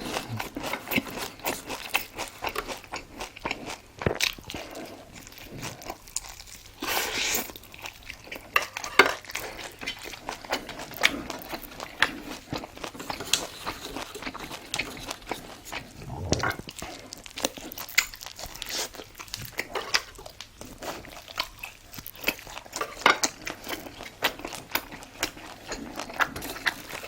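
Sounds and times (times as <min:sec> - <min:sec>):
chewing and crunching: 0:00.0 - 0:27.0
wet mouth clicks: 0:15.9 - 0:16.8.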